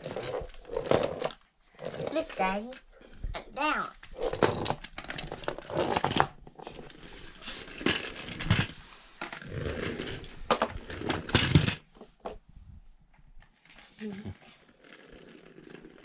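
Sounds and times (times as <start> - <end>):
plastic toy trucks rattling: 0.0 - 12.4.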